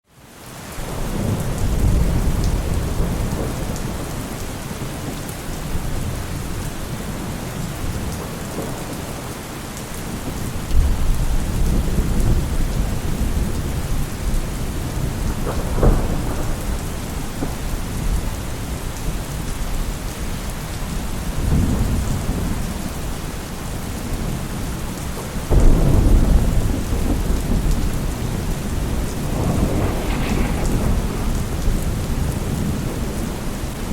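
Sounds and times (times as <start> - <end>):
rain falling: 0.1 - 33.9
thunder rolling: 10.3 - 18.8, 25.5 - 33.9
sharp thunder crack: 25.5 - 33.5.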